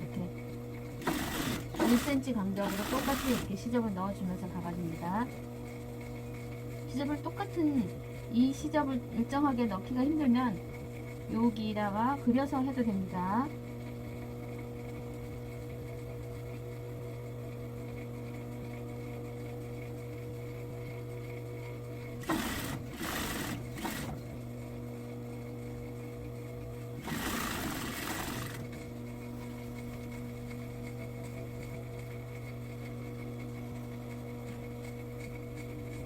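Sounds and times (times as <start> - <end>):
sewing machine stitching: 1.0 - 3.9, 22.2 - 24.3, 27.0 - 28.9.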